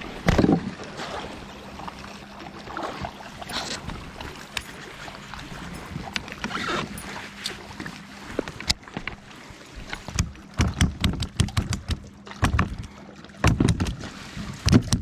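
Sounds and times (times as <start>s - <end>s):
knocks on plastic kayak: 10.1s - 12.8s, 13.4s - 14.0s.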